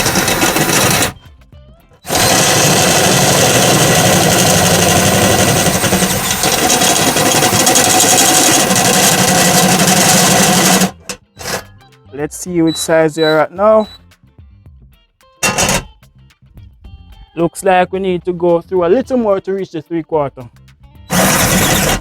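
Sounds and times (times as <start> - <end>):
power drill cutting sheet metal: 0.0 - 1.2, 2.1 - 11.7, 12.7 - 14.0, 15.4 - 15.9, 21.1 - 22.0.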